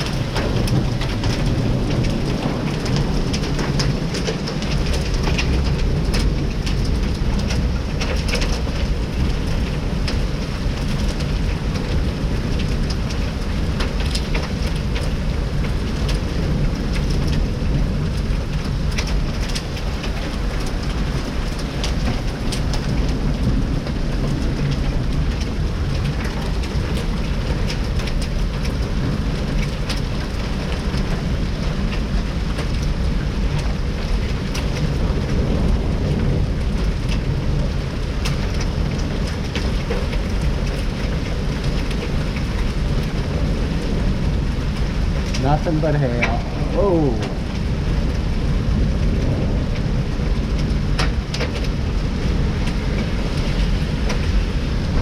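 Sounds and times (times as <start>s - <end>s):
heavy rain pouring: 0.0s - 55.0s
low rumble: 42.8s - 55.0s.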